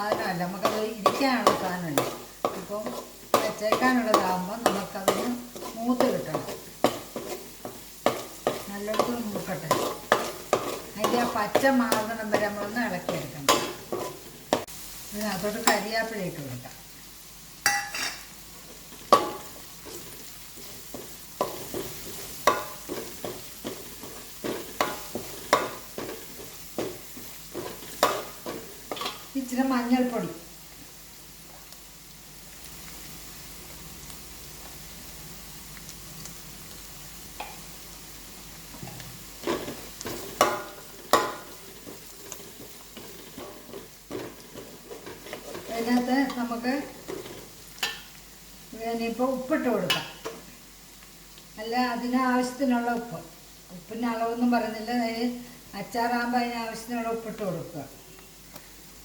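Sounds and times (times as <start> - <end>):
spoon scraping and knocking pan: 0.0 - 14.7, 17.6 - 30.2, 38.7 - 48.2, 49.6 - 50.5
food sizzling in hot oil: 0.0 - 59.0
spoon knocking against pan: 17.6 - 18.3, 21.0 - 23.5, 24.4 - 26.2, 40.4 - 41.6.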